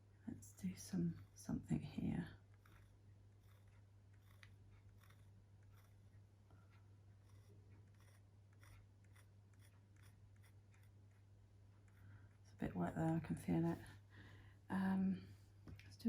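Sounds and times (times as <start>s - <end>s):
low steady hum: 0.0s - 16.0s
drawing tool scratching paper: 0.7s - 12.5s.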